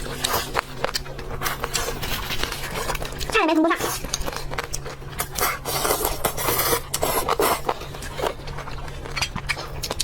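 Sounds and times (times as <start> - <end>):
crunching and chewing: 0.0 - 10.0
steady low hum: 0.0 - 10.0.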